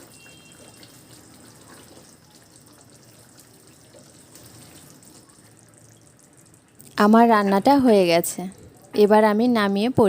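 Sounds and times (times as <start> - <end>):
curry bubbling and sizzling: 0.0 - 9.0.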